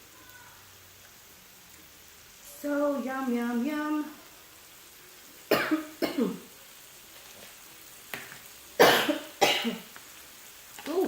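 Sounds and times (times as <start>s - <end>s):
woman coughing: 5.5s - 6.4s, 8.8s - 9.9s.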